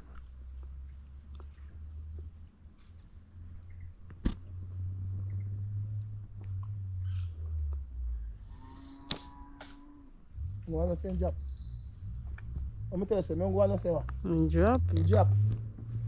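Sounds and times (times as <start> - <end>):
bird chirps: 0.1 - 10.0, 10.7 - 14.8
sharp click: 9.1 - 9.8
low rumble: 10.2 - 16.0.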